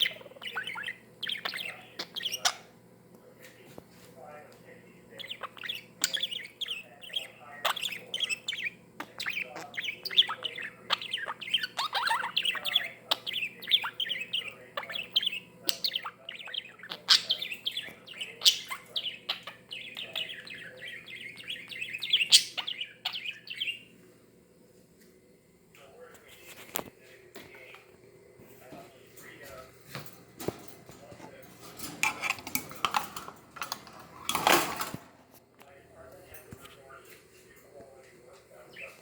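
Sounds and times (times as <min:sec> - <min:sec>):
beak ticking against glass: 0:00.0 - 0:02.7, 0:05.2 - 0:23.8
budgerigar warbling and chirping: 0:00.0 - 0:02.7, 0:05.1 - 0:23.9.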